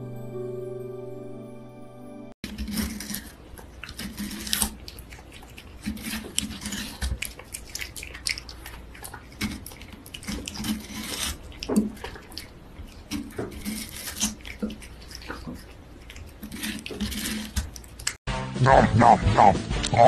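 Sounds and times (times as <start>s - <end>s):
cat licking and lapping: 2.7s - 18.2s.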